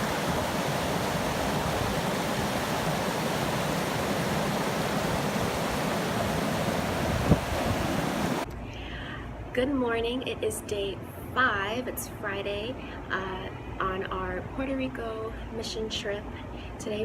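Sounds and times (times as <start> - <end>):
steady rushing noise: 0.0 - 8.5.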